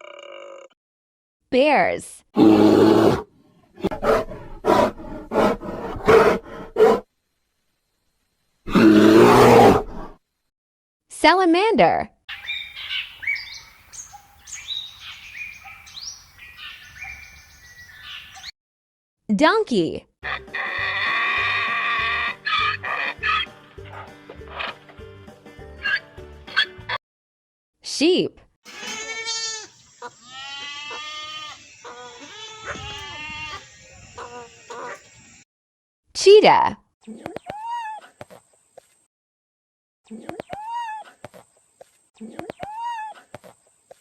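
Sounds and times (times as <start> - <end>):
wild birds chirping: 12.3 - 18.5, 29.6 - 35.4
sheep bleating: 28.7 - 33.6.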